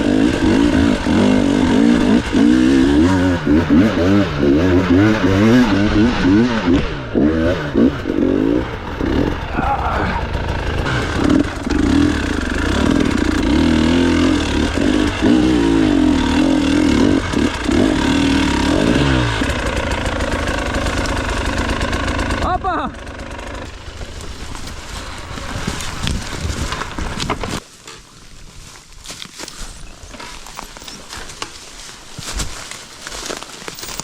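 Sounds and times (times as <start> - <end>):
motorcycle engine revving: 0.0 - 27.6.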